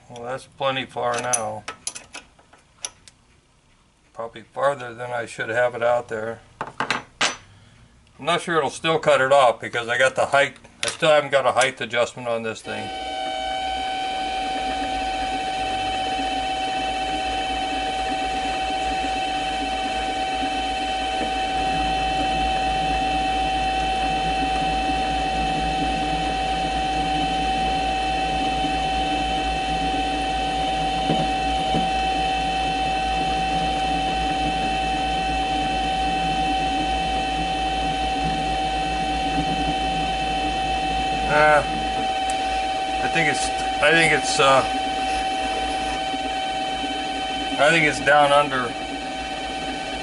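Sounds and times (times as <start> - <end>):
lathe motor and gear whine: 12.2 - 50.0.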